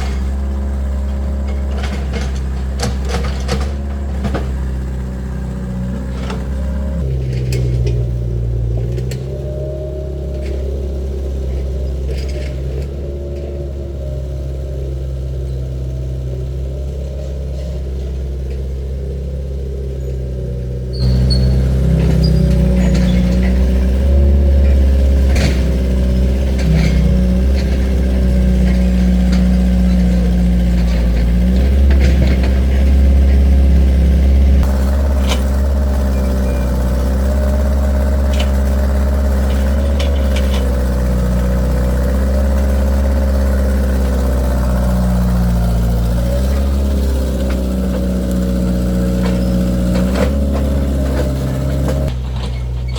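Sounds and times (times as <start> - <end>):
metal clanks and knocks: 0.0 - 5.0, 6.0 - 9.4, 21.0 - 52.9
excavator diesel engine running: 0.0 - 52.9.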